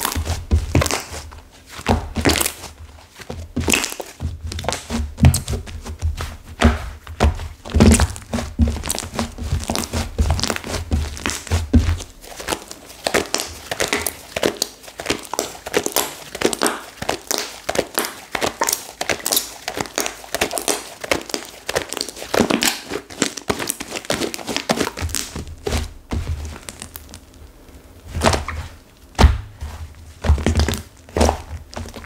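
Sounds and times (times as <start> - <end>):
slime crackling when squeezed: 12.2 - 25.7.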